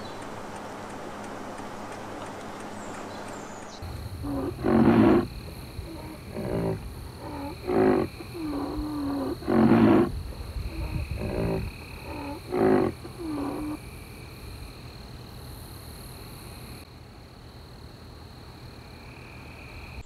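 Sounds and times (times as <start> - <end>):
large animal deep calls: 3.8 - 13.8.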